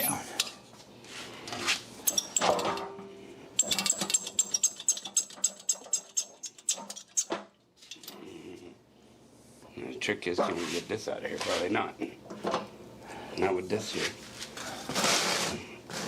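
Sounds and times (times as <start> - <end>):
lifting gear ratcheting clicks: 3.6 - 7.3.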